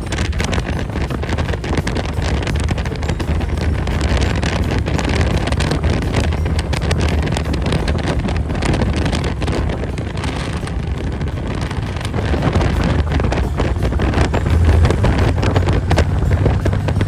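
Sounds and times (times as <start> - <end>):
motorcycle engine rumble: 0.0 - 17.0
wind buffeting microphone: 0.0 - 17.0.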